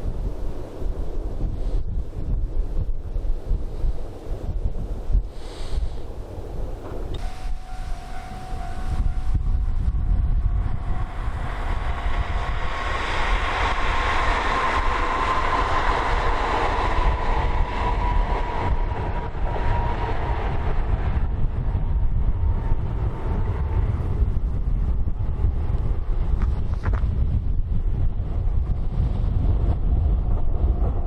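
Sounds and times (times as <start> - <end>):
steady train whine: 0.0 - 31.0
wind buffeting microphone: 0.0 - 31.0
electric train passing: 6.5 - 26.7.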